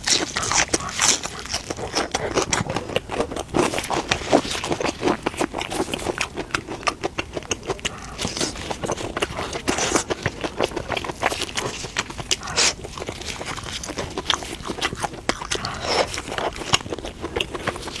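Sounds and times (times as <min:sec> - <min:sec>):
person chewing with wet mouth sounds: 0:00.0 - 0:18.0.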